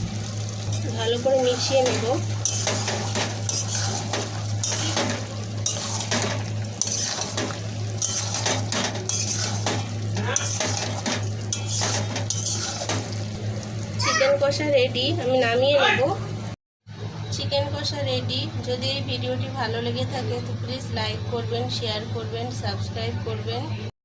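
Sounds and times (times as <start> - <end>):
utensil scraping a pan: 0.7 - 13.3.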